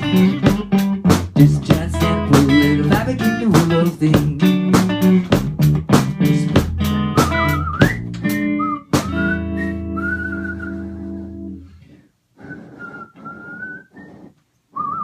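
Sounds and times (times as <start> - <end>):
drum beat: 0.0 - 7.5
electric guitar melody: 0.0 - 10.0.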